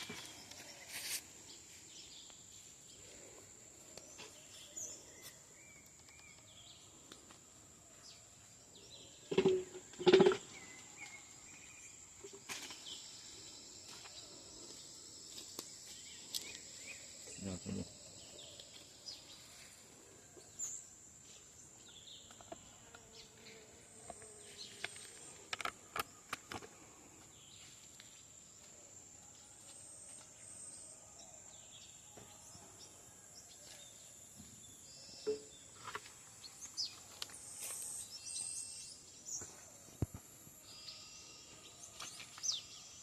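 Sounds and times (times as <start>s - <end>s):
high-pitched insect drone: 40.6s - 41.7s.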